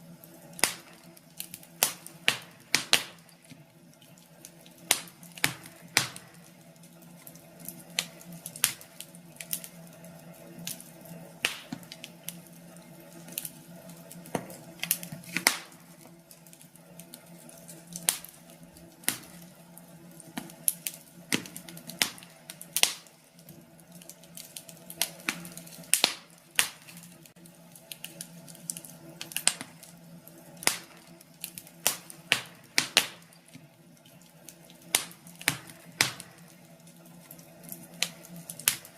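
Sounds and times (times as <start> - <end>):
fireplace fire crackling: 0.0 - 38.9.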